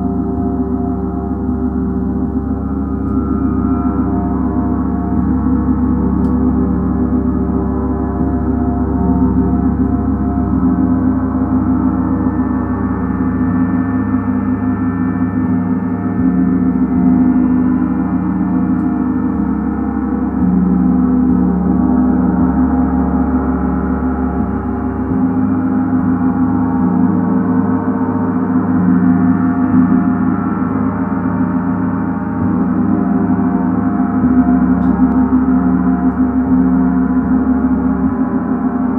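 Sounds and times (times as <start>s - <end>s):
gongs ringing: 0.0s - 38.9s.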